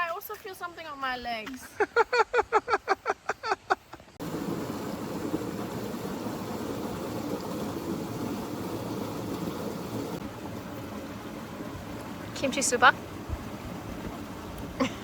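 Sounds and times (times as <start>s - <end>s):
stream water flowing: 4.2s - 15.0s.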